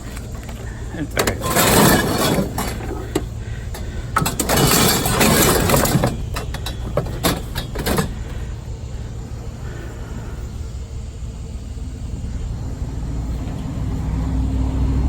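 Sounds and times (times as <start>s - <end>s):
rustling and knocks of handling: 0.0s - 8.4s
vehicle engine idling: 0.0s - 15.0s.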